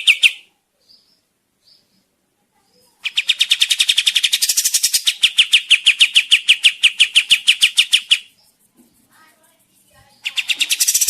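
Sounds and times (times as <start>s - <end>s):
faint bird chirps: 0.0s - 8.7s, 10.0s - 11.0s
fast bird trill: 3.0s - 8.5s, 10.2s - 11.0s.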